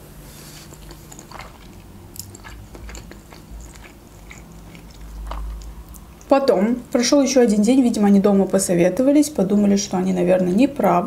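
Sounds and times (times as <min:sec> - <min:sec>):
person chewing food: 0:00.3 - 0:06.3.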